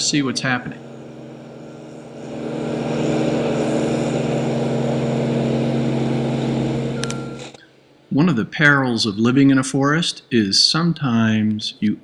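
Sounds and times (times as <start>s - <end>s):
machinery engine running: 0.0s - 7.6s.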